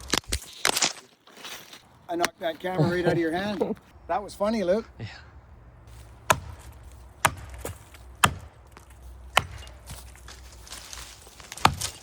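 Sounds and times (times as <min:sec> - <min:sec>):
axe chopping into tree trunk: 0:06.2 - 0:10.4, 0:11.4 - 0:12.0.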